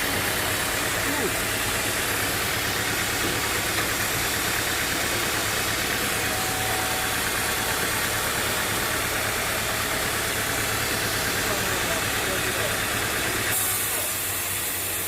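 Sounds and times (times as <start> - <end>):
sawmill engine droning: 0.0 - 15.0.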